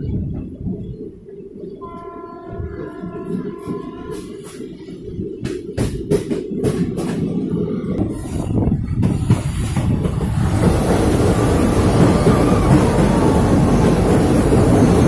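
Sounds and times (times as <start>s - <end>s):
train rumbling on track: 0.0s - 15.0s
hiss: 8.0s - 12.9s.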